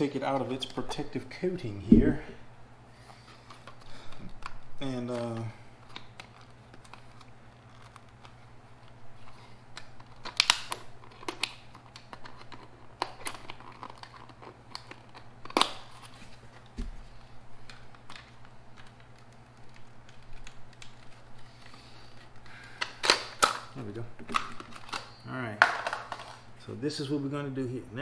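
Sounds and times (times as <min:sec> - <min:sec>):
plastic packaging crinkling: 0:03.4 - 0:16.7.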